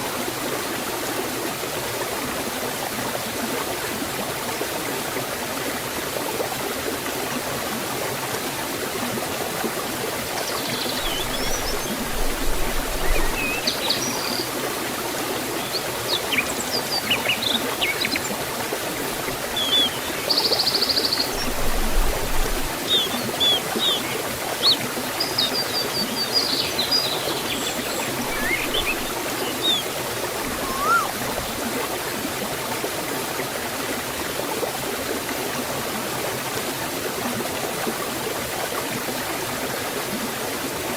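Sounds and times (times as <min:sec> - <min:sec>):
waterfall and stream running: 0:00.0 - 0:40.9
birds chirping: 0:10.6 - 0:14.5, 0:19.5 - 0:31.6
short buzzy bird trill: 0:28.3 - 0:31.3.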